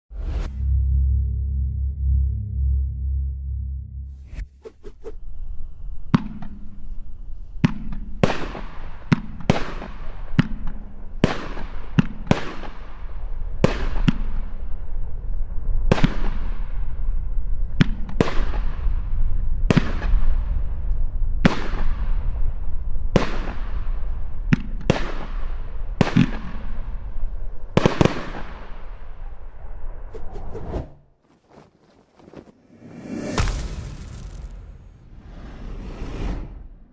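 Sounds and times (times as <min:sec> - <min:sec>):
fireworks bangs: 0:32.6 - 0:36.9.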